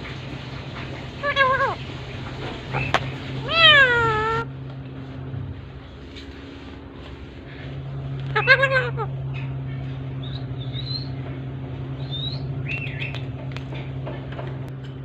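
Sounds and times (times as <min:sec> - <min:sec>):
low mechanical hum: 0:00.0 - 0:15.0
parakeet whistled chirps: 0:10.2 - 0:11.2, 0:12.0 - 0:13.3.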